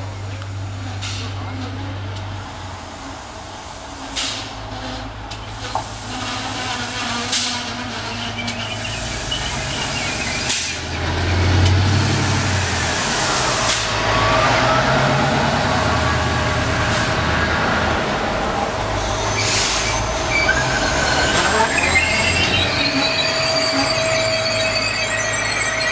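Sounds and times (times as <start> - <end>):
diesel train engine passing: 0.0 - 25.9
faint wavering squeal: 7.6 - 11.5, 12.3 - 17.6, 18.8 - 25.9.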